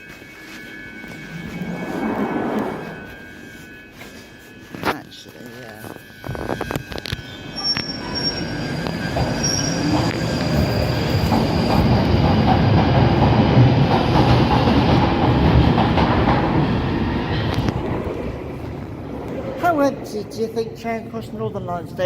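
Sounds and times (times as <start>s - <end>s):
high wheel squeal: 0.0s - 4.7s, 5.6s - 12.0s
underground train rumble: 0.0s - 22.0s.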